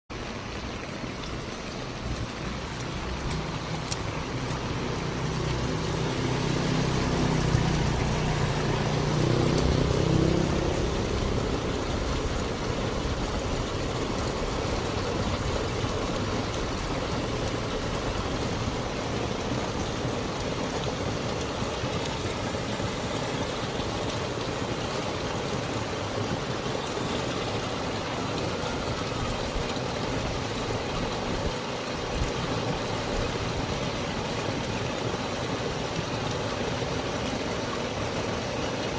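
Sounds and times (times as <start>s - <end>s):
floodwater rushing: 0.1s - 38.9s
vehicle engine running: 1.7s - 24.7s.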